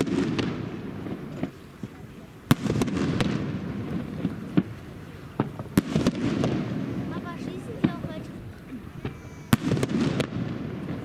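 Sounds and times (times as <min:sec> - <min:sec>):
fireworks banging and crackling: 0:00.0 - 0:11.0.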